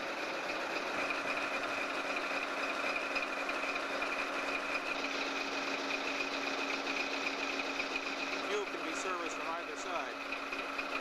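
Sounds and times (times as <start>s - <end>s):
diesel locomotive engine idling: 0.0s - 11.0s.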